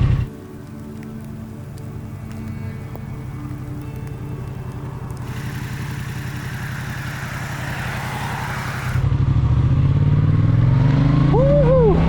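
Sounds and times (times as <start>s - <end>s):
motorcycle engine idling: 0.0s - 9.8s
rushing hiss: 0.3s - 9.0s.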